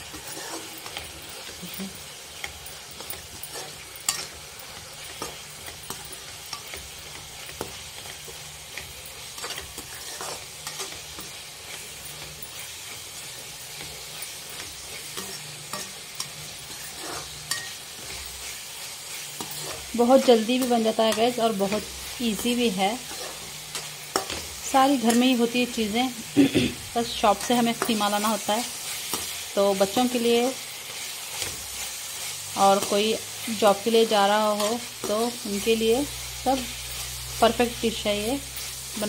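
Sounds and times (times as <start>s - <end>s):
metal spatula scraping pan: 0.0s - 1.1s, 3.1s - 6.8s, 8.8s - 18.6s, 19.2s - 25.4s
meat sizzling in a pan: 0.0s - 39.0s.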